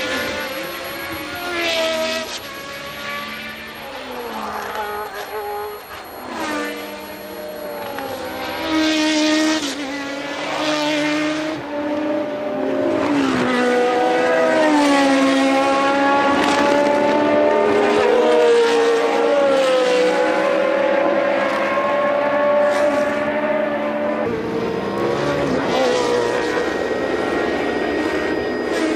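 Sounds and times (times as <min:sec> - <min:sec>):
race car engines at high revs: 0:00.0 - 0:28.9.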